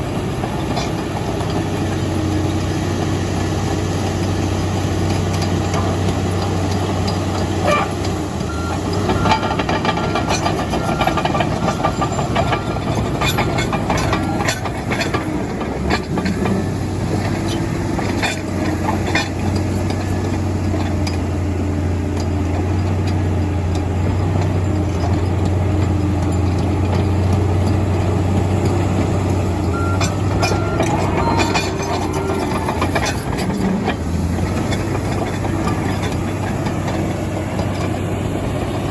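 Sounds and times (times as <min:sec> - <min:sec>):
diesel engine running: 0:00.0 - 0:38.9
metallic clanks and knocks: 0:08.9 - 0:21.2, 0:22.2 - 0:38.1.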